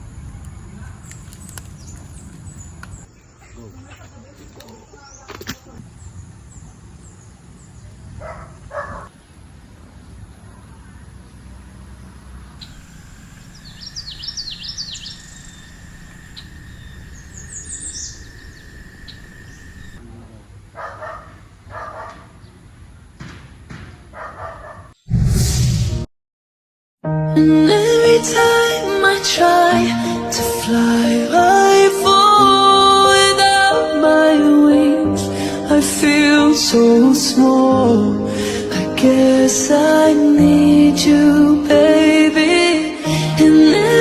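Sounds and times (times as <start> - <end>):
birds chirping: 0.0 - 25.1.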